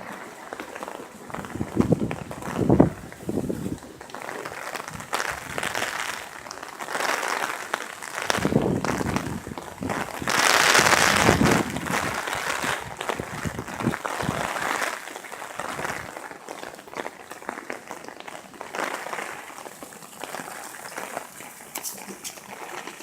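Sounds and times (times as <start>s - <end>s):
heavy rain patter: 0.0s - 23.0s
loud rushing wind gust: 8.3s - 14.4s.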